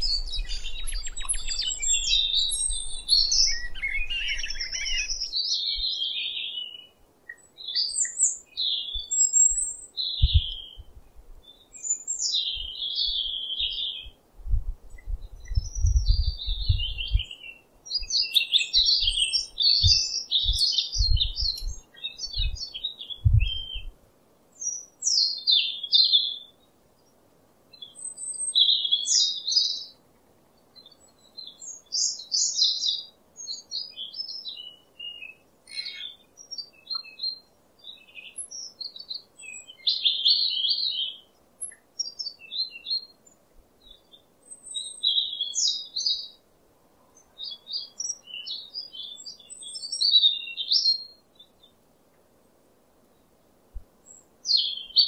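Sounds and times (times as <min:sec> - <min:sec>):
bird twittering: 0:00.0 - 0:06.8, 0:15.0 - 0:23.9.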